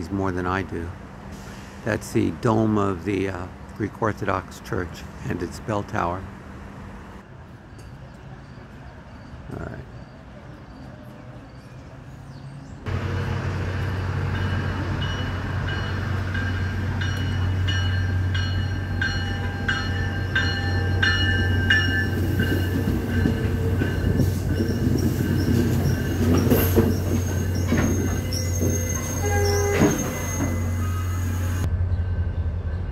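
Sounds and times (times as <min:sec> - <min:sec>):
diesel locomotive drone: 0:00.0 - 0:32.9
high wheel squeal: 0:22.0 - 0:31.7.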